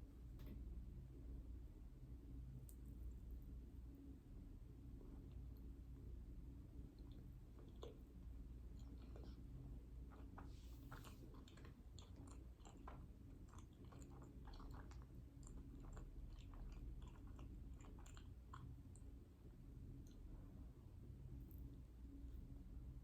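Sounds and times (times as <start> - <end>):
low steady hum: 0.0 - 23.0
person chewing: 7.0 - 19.0.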